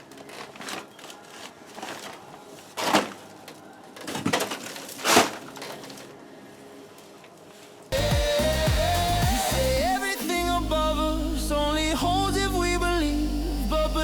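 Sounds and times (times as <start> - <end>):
drywall breaking: 0.0 - 6.1.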